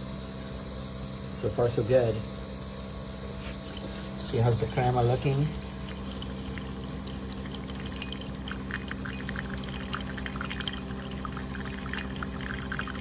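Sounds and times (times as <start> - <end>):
espresso machine pump humming: 0.0 - 13.0
espresso dripping into cup: 3.7 - 13.0.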